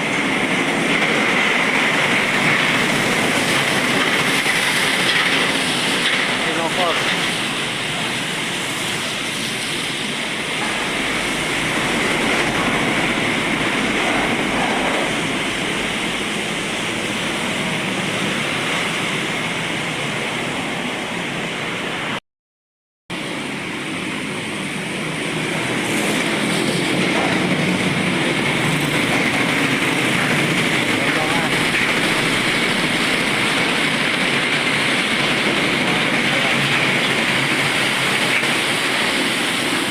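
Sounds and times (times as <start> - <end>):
tyres hissing through water: 0.0 - 21.8, 23.5 - 39.9
truck engines passing: 24.4 - 39.9.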